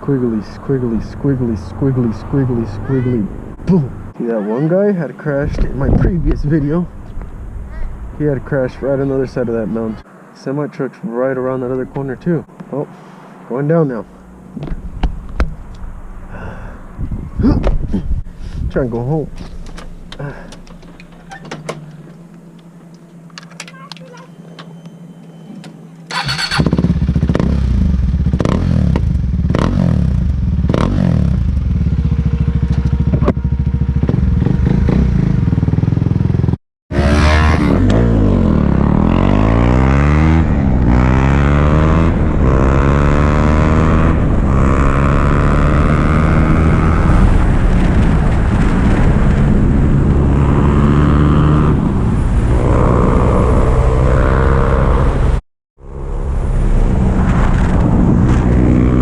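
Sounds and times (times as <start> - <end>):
wind noise: 5.4 - 10.0, 14.5 - 21.4, 39.4 - 55.4, 56.0 - 59.0
motorcycle engine revving: 26.1 - 59.0.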